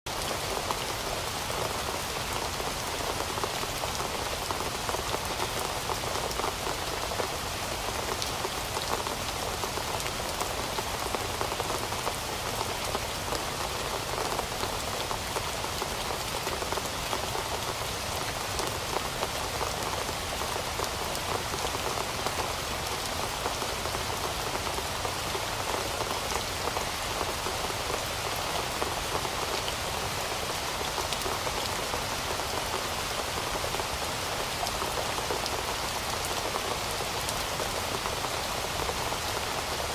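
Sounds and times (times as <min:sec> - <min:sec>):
steady rain falling: 0:00.1 - 0:39.9.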